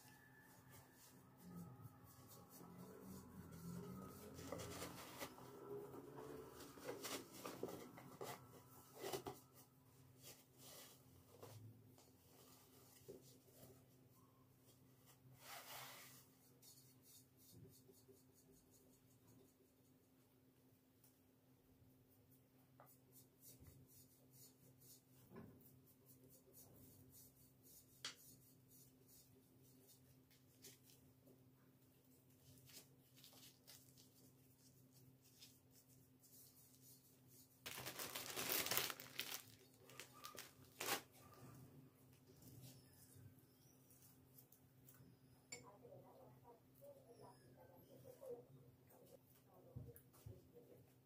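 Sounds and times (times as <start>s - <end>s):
scratching and rubbing strokes: 0.0s - 20.4s, 22.0s - 31.3s, 32.0s - 37.8s.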